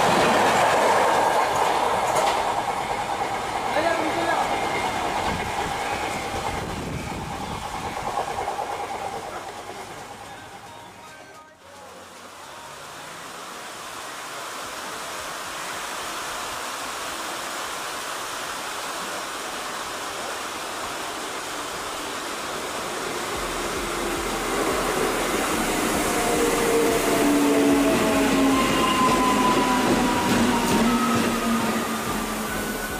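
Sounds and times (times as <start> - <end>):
train rushing: 0.0 - 32.9
whining tones: 23.2 - 32.9
low hum: 23.3 - 27.6.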